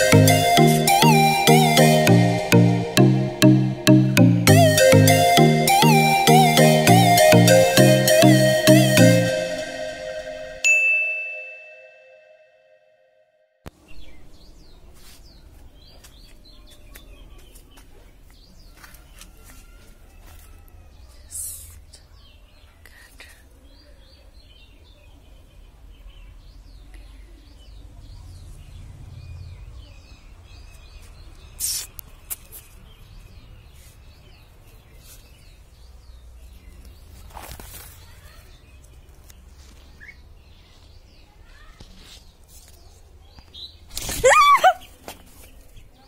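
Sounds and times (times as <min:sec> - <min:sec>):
small birds chirping: 0:20.9 - 0:46.0.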